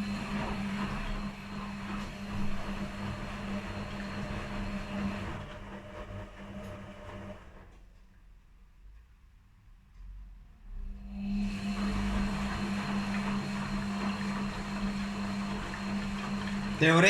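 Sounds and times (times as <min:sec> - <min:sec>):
washing machine motor hum: 0:00.0 - 0:07.8, 0:10.8 - 0:17.0
water rushing in washing machine: 0:00.0 - 0:07.8, 0:11.0 - 0:17.0.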